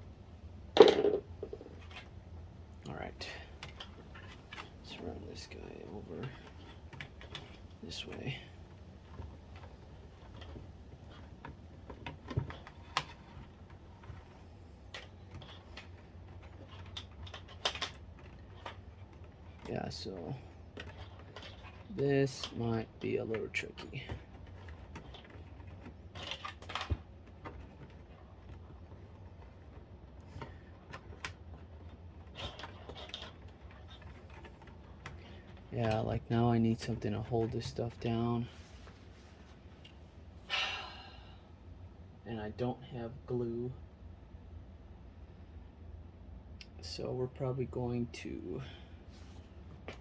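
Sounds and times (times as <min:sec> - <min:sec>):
low steady hum: 0:00.0 - 0:50.0.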